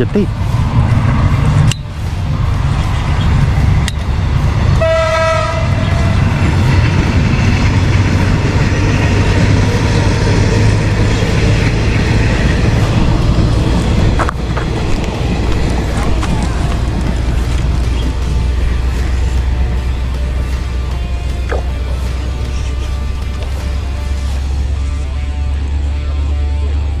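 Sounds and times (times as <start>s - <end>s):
loud low rumble: 0.0s - 26.3s
horn sounding: 4.8s - 6.4s.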